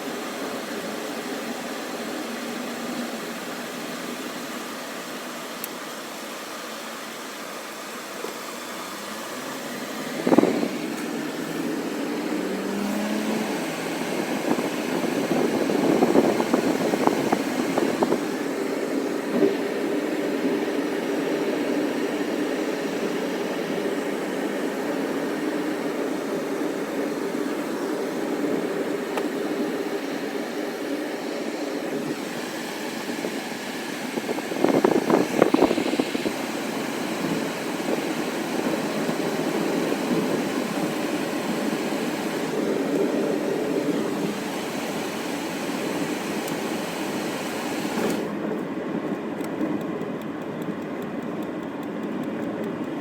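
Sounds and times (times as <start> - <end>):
vehicle engine running: 7.6 - 53.0
sandstorm wind rushing: 9.8 - 48.4.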